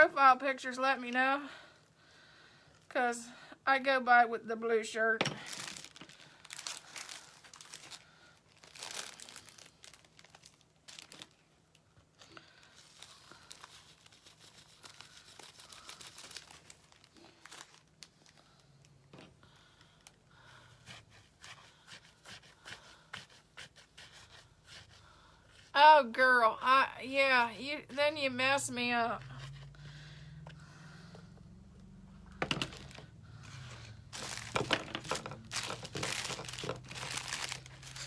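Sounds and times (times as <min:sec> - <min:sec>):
craft materials rustling: 0:05.2 - 0:11.4, 0:32.4 - 0:38.0.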